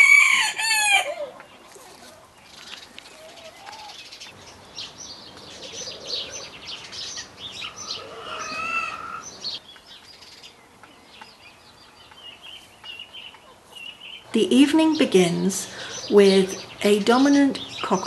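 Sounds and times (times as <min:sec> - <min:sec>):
small birds chirping: 0:01.2 - 0:18.0
loud wavering bird call: 0:05.5 - 0:09.6.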